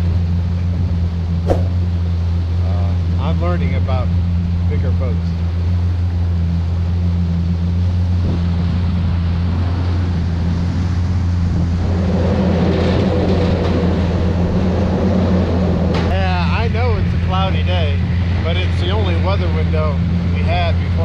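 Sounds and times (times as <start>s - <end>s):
watercraft engine droning: 0.0s - 21.0s
wind on microphone: 0.8s - 1.9s
loud humming: 1.4s - 2.2s.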